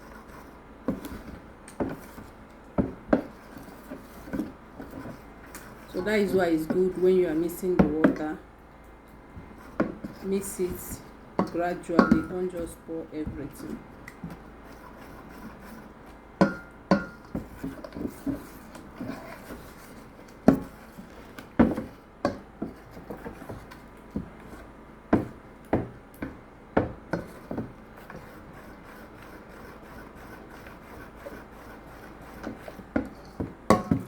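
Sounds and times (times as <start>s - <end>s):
spoon scraping bowl: 3.1s - 8.4s, 9.5s - 21.4s, 27.1s - 34.0s.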